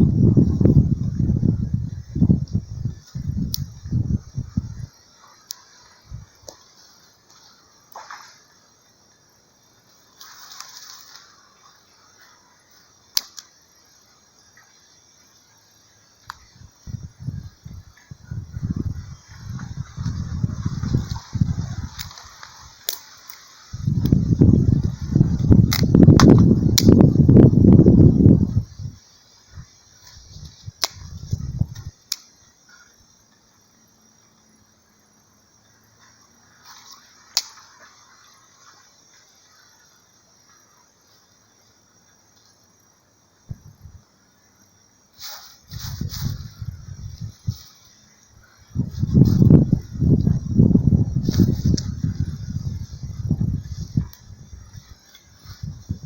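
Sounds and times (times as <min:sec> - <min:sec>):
wind buffeting microphone: 0:00.0 - 0:04.9, 0:16.4 - 0:22.2, 0:23.7 - 0:29.0, 0:29.6 - 0:31.9, 0:45.7 - 0:47.6, 0:48.6 - 0:56.0
high insect hiss: 0:00.0 - 0:56.0
dry twigs cracking: 0:10.2 - 0:11.4, 0:13.1 - 0:13.5, 0:20.7 - 0:24.3, 0:25.6 - 0:27.0, 0:30.4 - 0:32.3, 0:36.7 - 0:37.8
sharp snap: 0:13.1 - 0:13.5, 0:25.6 - 0:27.0, 0:30.8 - 0:32.3, 0:37.3 - 0:37.6.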